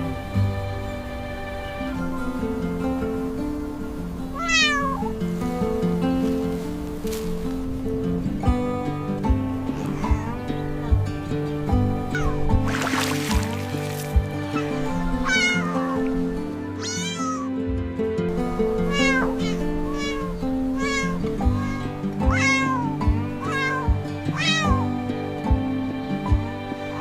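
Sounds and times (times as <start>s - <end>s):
cat meowing: 4.3s - 5.2s, 9.6s - 10.7s, 12.0s - 13.7s, 14.3s - 17.6s, 18.6s - 25.0s
background music with beat: 8.4s - 15.0s, 21.4s - 27.0s.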